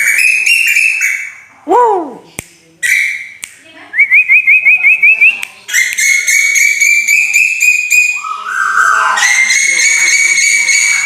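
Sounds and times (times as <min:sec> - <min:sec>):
bird whistling and trilling: 0:00.0 - 0:01.4, 0:04.0 - 0:11.0.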